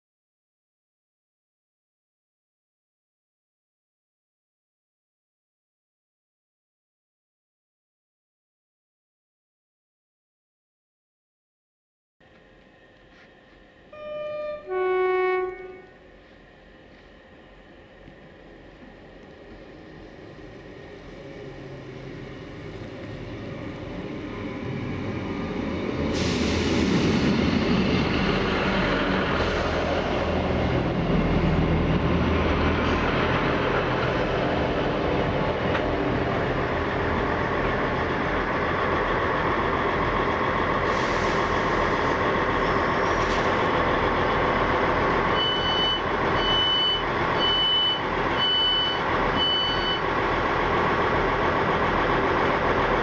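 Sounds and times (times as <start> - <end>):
diesel locomotives passing: 12.3 - 53.0.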